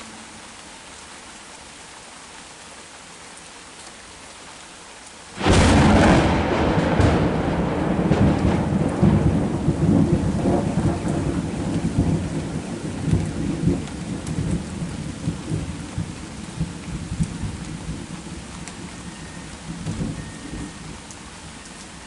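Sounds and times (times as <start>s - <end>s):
heavy rain: 0.0s - 22.0s
thunder rumbling: 5.4s - 21.0s.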